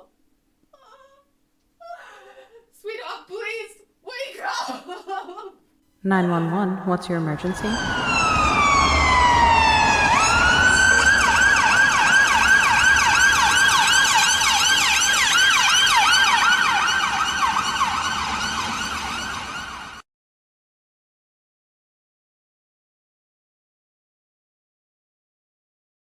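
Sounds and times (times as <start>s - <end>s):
low rumble: 6.1s - 14.1s
ambulance siren wailing and yelping: 7.4s - 20.0s.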